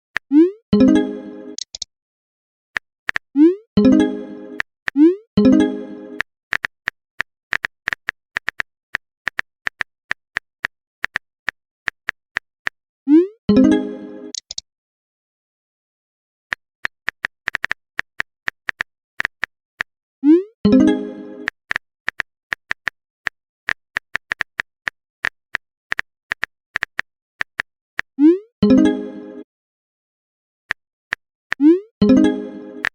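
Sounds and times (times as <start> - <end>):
message sent chime: 0.8 - 1.6, 3.8 - 4.6, 5.4 - 6.2, 13.5 - 14.4, 20.7 - 21.4, 28.6 - 29.4.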